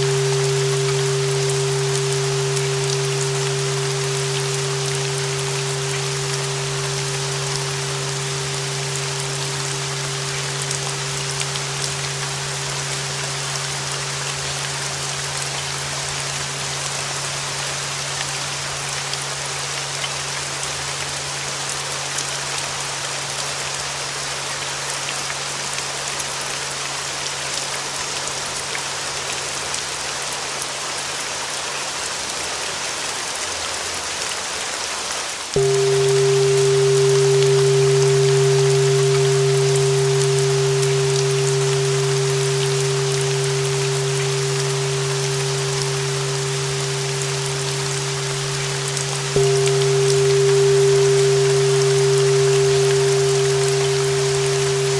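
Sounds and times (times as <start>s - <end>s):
ringing bell tone: 0.0s - 16.6s, 35.6s - 54.9s
steady rain: 0.0s - 54.9s.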